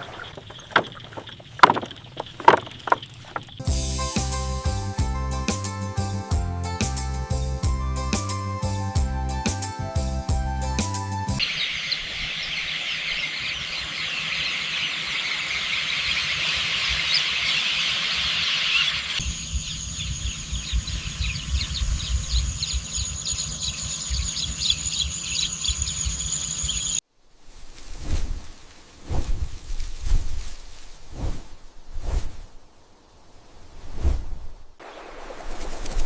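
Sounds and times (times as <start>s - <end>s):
high-pitched chirping chorus: 11.4s - 27.0s
low swishing: 27.6s - 32.6s, 33.6s - 34.7s.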